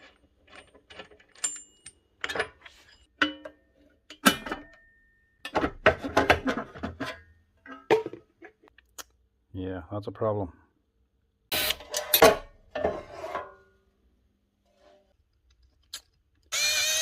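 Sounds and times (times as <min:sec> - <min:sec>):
metal clanks and knocks: 0:00.0 - 0:08.7.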